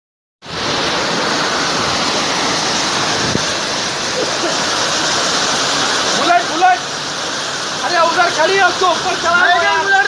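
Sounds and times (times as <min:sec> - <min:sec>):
rushing water: 0:00.4 - 0:10.0.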